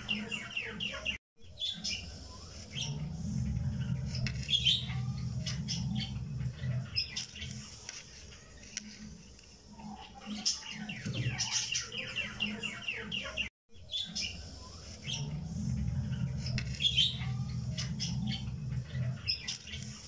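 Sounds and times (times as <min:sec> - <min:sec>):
birds chirping: 0:00.0 - 0:20.0
low hum: 0:02.0 - 0:07.0, 0:14.3 - 0:19.3.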